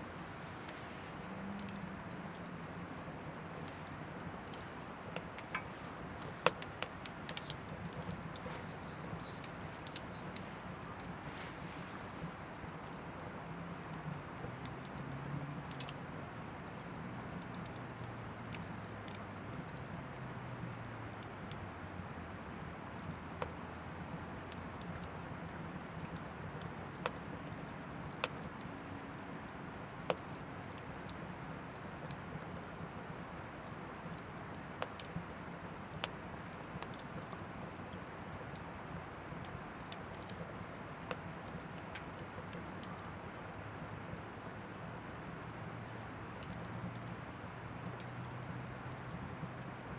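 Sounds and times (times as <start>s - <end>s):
wood burning in a stove: 0.0s - 49.9s.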